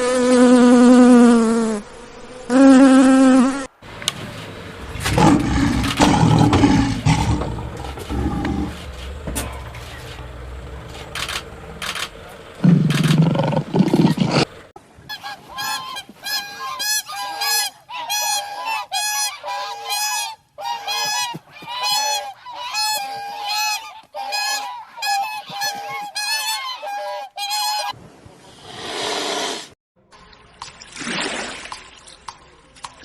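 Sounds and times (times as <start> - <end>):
waterfowl honking: 13.9 - 27.9.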